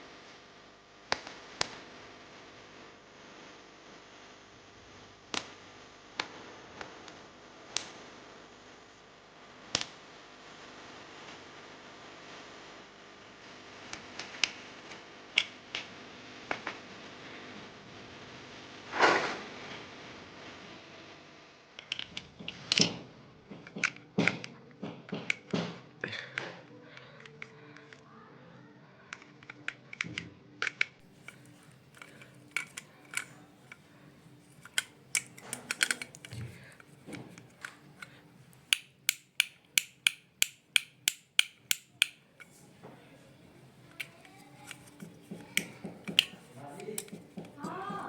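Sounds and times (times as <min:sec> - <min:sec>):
small hard parts clicking: 0:30.6 - 0:42.6, 0:43.8 - 0:48.0.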